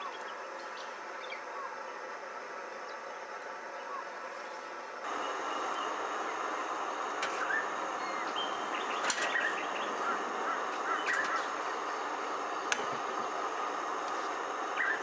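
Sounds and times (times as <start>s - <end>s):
outdoor background hiss: 0.0s - 15.0s
bird chirps and calls: 7.4s - 11.7s, 14.8s - 15.0s
sharp clicks: 12.7s - 12.9s.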